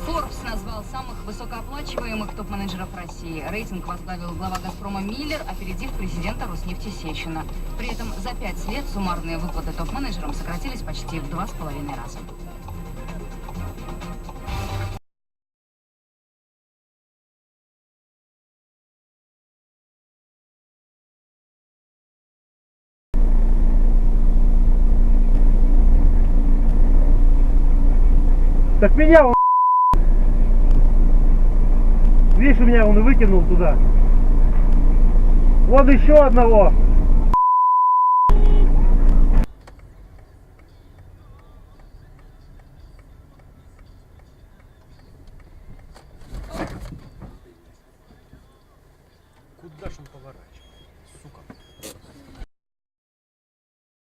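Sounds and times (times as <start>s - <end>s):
car engine and road rumble: 0.0s - 15.0s, 23.2s - 37.5s, 38.1s - 52.5s
turn signal relay ticking: 0.4s - 14.4s, 38.4s - 46.2s.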